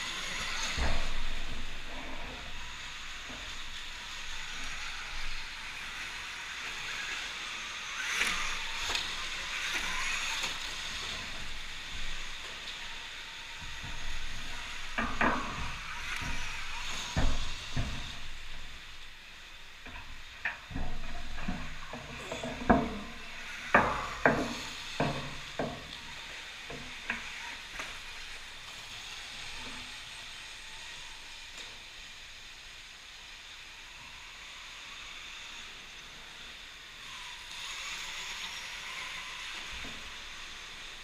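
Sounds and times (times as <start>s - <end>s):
steady hiss: 0.0s - 41.0s
irregular knocks and clatters: 8.3s - 19.0s, 19.8s - 28.3s.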